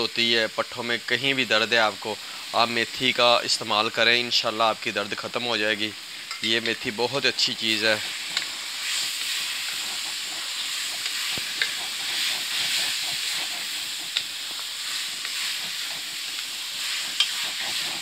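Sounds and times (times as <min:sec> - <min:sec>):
food sizzling in a pan: 0:00.0 - 0:18.0
spatula scraping a pan: 0:07.6 - 0:18.0.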